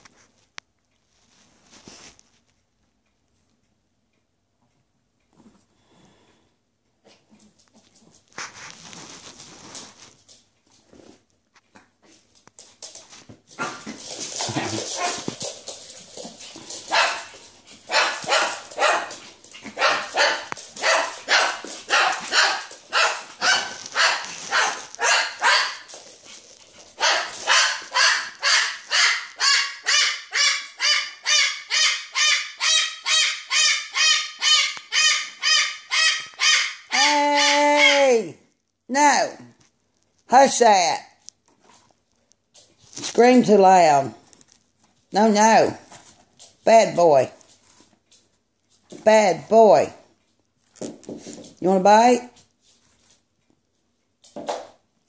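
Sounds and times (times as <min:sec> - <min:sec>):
dog barking: 0:16.9 - 0:17.3, 0:17.9 - 0:25.9, 0:27.0 - 0:37.0.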